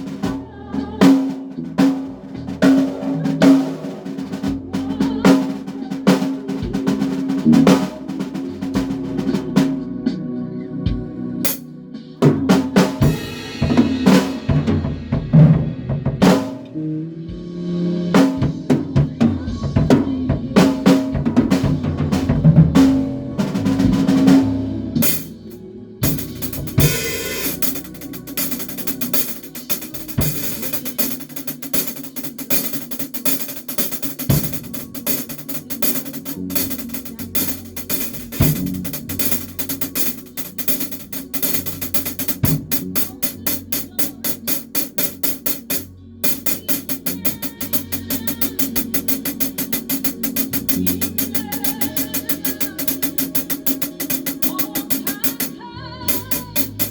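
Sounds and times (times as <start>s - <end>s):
drum kit hits: 0.0s - 9.9s, 11.4s - 11.6s, 12.2s - 16.7s, 18.1s - 56.9s
cymbal and hi-hat pattern: 0.0s - 10.2s, 11.4s - 16.7s, 20.6s - 56.9s
band playing: 12.2s - 20.0s, 20.6s - 56.9s.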